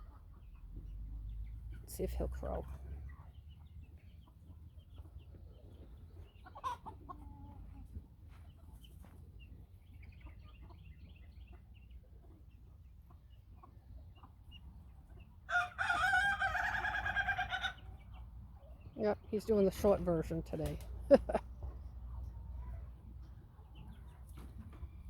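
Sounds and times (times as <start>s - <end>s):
chickens clucking: 0.0s - 25.0s
rooster crowing: 15.5s - 17.7s
loud chicken call: 15.5s - 18.0s.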